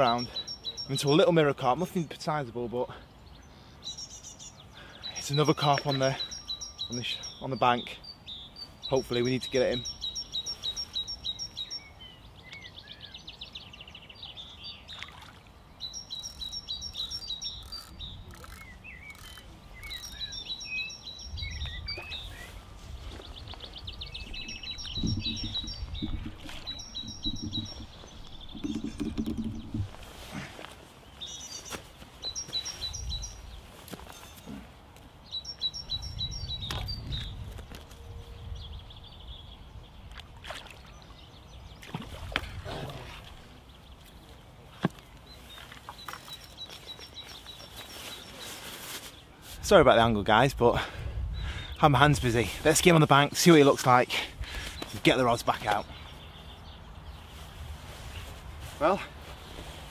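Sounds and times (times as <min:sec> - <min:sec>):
songbird trilling: 0:00.0 - 0:01.3, 0:03.4 - 0:15.2, 0:15.8 - 0:30.1, 0:31.2 - 0:33.5, 0:35.2 - 0:37.4.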